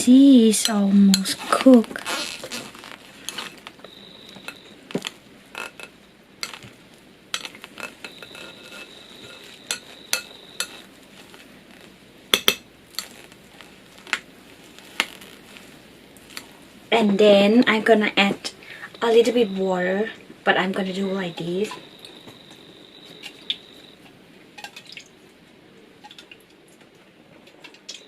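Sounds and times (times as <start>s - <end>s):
spoon clinking against a bowl: 7.4s - 10.8s.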